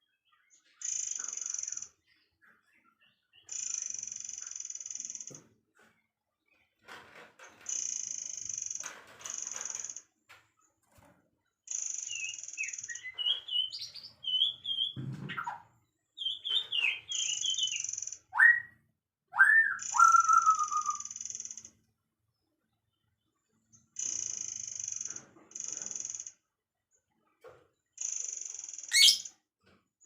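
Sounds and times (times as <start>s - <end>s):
songbirds singing: 11.7s - 21.7s, 28.9s - 29.3s.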